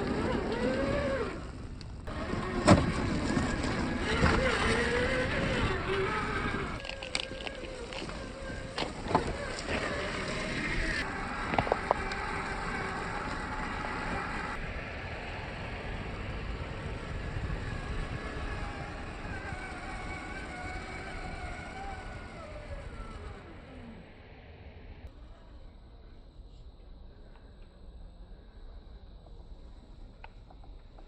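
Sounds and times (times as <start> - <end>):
toy car electric motor whine: 0.0 - 14.6, 16.6 - 24.1
steady rumble: 0.0 - 31.0.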